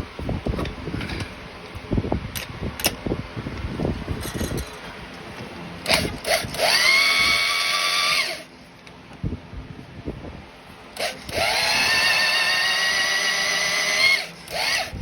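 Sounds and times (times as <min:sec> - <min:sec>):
power drill motor whining: 0:05.8 - 0:08.5, 0:11.0 - 0:15.0.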